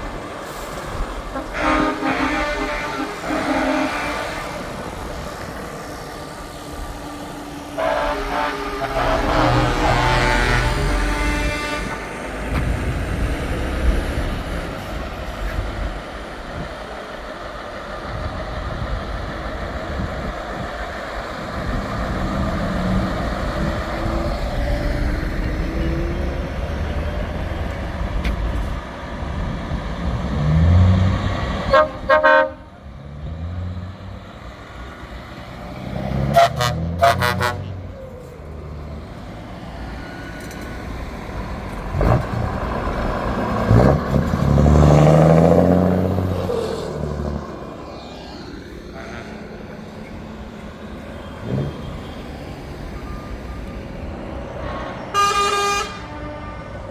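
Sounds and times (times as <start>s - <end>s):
truck engine revving: 0.0s - 53.3s
trucks driving past: 0.0s - 56.9s
truck horn toots: 1.3s - 5.7s, 7.7s - 12.9s, 31.6s - 32.8s, 35.7s - 38.1s, 49.0s - 49.8s, 54.7s - 56.9s.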